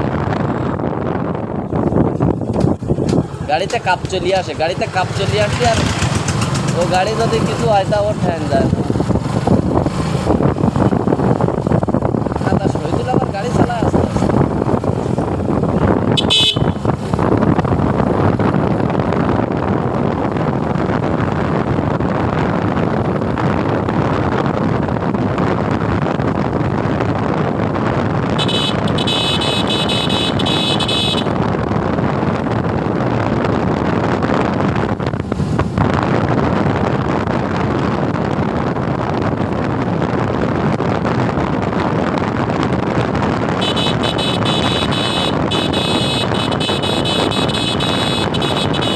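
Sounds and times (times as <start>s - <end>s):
wind and road noise: 0.0s - 48.9s
high-pitched horn: 16.2s - 16.8s, 28.4s - 31.3s, 43.6s - 48.9s.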